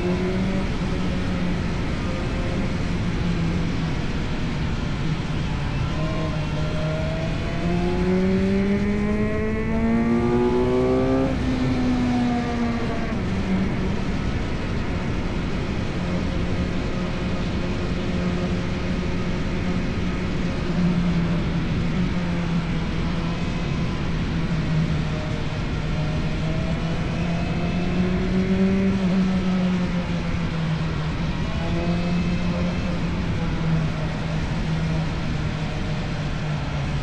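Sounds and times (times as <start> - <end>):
motorcycle engine revving: 0.0 - 15.2.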